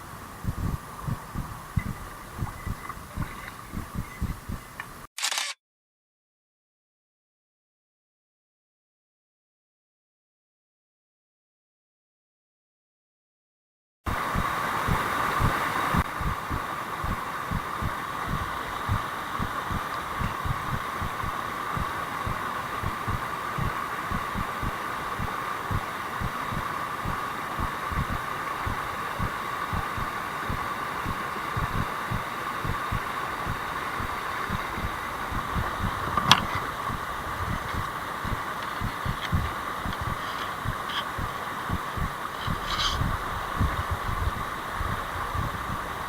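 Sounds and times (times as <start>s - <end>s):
mountain stream rushing: 0.0s - 5.1s, 14.1s - 46.0s
low thumps: 0.4s - 4.9s, 14.9s - 45.9s
sharp click: 4.8s - 5.6s.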